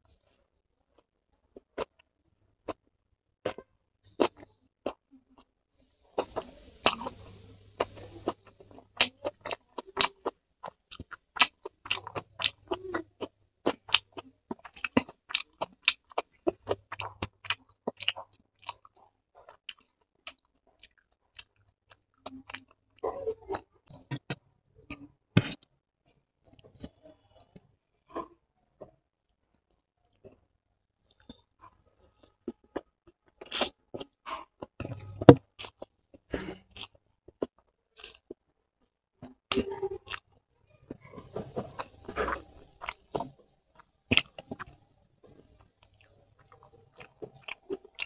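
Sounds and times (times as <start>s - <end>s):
chewing with wet smacks: 6.2s - 22.8s, 39.5s - 48.0s.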